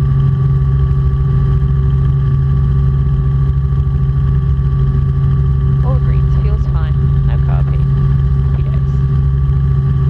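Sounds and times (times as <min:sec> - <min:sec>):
helicopter engine and rotors droning: 0:00.0 - 0:10.0.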